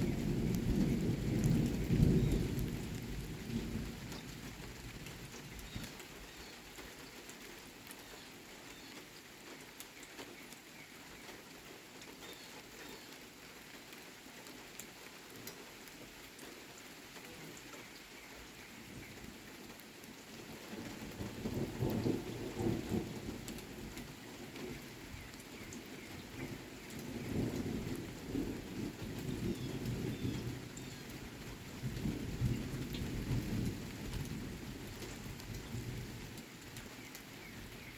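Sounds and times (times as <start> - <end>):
thunder rumbling: 0.0 - 5.9, 20.5 - 36.4
steady rain: 0.0 - 37.9.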